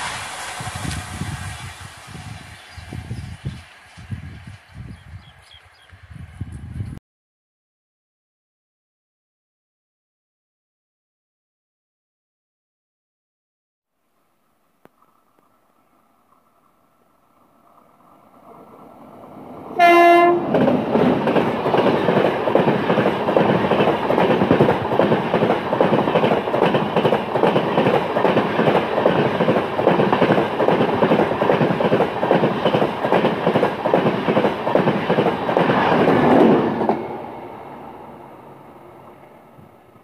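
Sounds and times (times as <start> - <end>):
rush of passing train coaches: 0.0 - 7.0, 15.0 - 40.0
wheels clacking over rail joints: 17.5 - 37.8
locomotive horn blast: 19.8 - 20.6.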